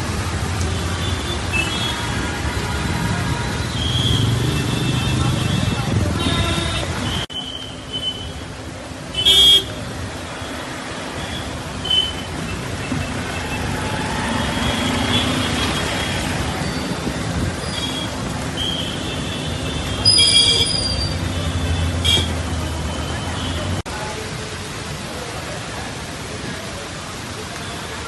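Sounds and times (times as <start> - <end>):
road traffic: 0.0 - 28.0
car horns honking: 9.2 - 9.8.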